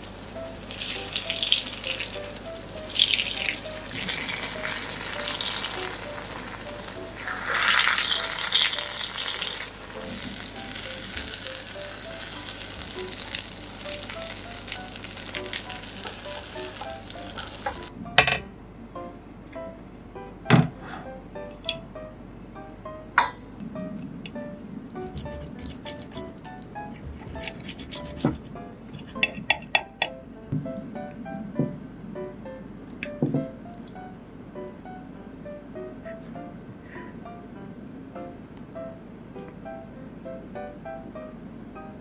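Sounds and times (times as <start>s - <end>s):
egg sizzling in a wok: 0.0s - 17.9s.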